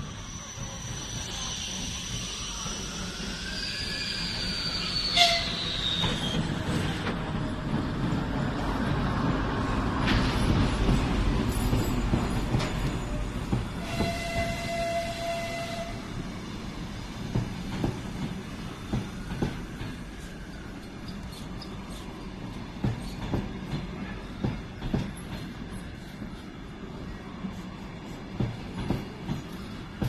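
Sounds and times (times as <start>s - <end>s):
high wheel squeals: 0.0s - 6.8s
diesel locomotive engine rumble: 0.0s - 30.0s.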